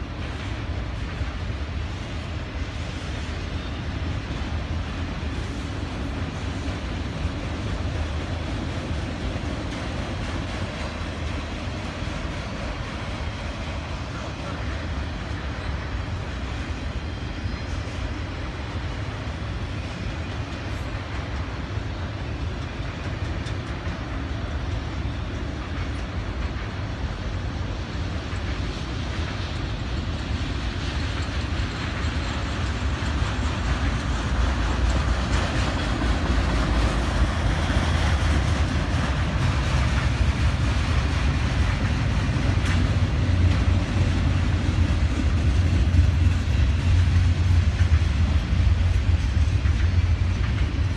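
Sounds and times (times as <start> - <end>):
train wheels rumbling: 0.0 - 50.9
clicking over rail joints: 17.6 - 50.9.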